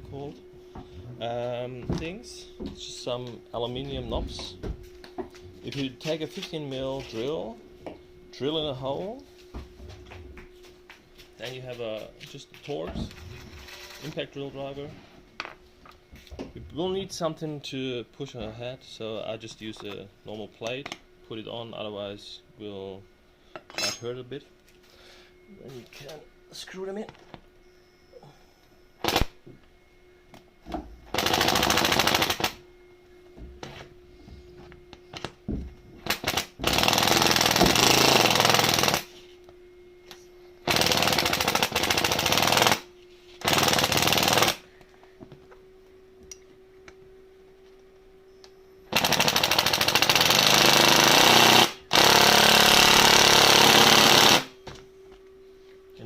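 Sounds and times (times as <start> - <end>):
impact driver hammering: 36.0 - 39.1, 48.9 - 54.5.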